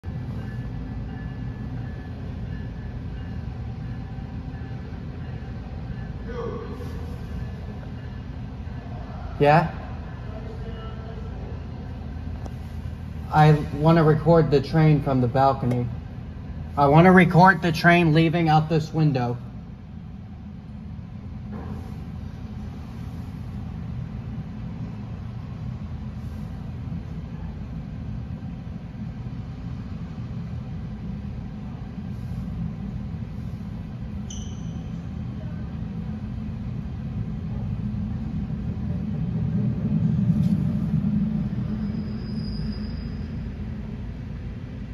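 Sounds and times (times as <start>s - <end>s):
electric locomotive passing: 0.0s - 44.9s
train cars rumbling past: 0.0s - 44.9s
high-pitched squeals: 34.2s - 35.2s, 41.4s - 43.7s.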